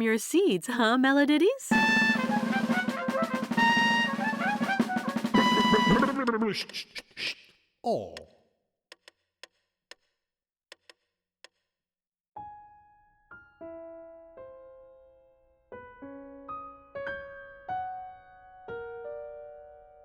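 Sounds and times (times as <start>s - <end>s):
slow piano-like keyboard melody: 12.4s - 20.0s.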